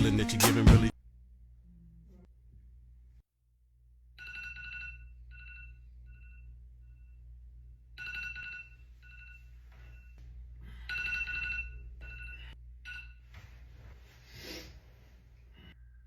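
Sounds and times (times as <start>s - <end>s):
mobile phone ringtone beeping: 4.2s - 6.4s, 8.0s - 10.1s, 10.8s - 13.2s.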